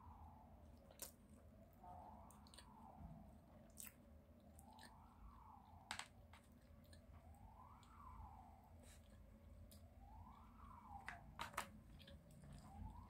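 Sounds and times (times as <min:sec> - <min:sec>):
faint siren wailing: 0:00.0 - 0:13.0
chewing food: 0:00.8 - 0:01.4, 0:02.3 - 0:03.0, 0:03.6 - 0:05.1, 0:06.4 - 0:07.9, 0:11.7 - 0:13.0.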